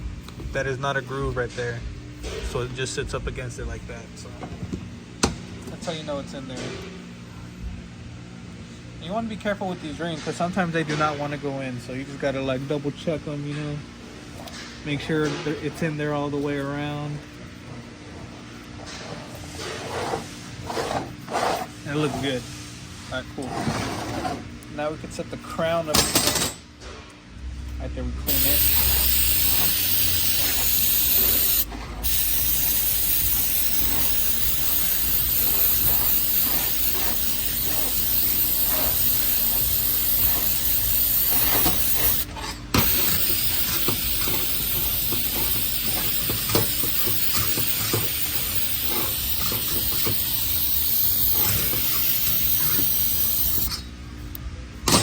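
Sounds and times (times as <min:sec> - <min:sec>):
compressed air spray hissing: 0:28.3 - 0:53.8.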